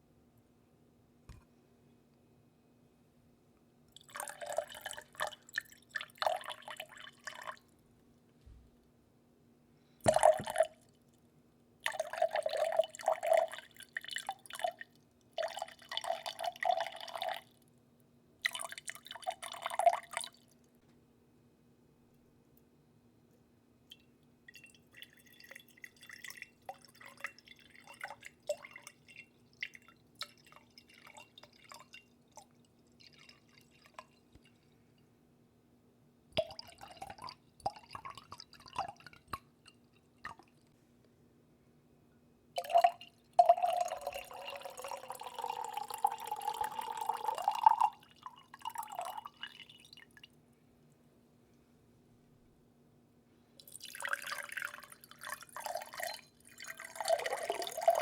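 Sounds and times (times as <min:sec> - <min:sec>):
faint steady hum: 0:00.0 - 0:58.0
water dripping: 0:36.4 - 0:40.7, 0:42.6 - 0:50.3
splashing water trickle: 0:42.6 - 0:50.2.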